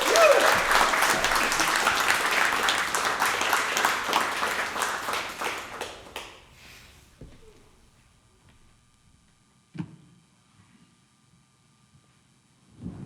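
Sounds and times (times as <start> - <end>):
audience applauding and cheering: 0.0 - 7.4.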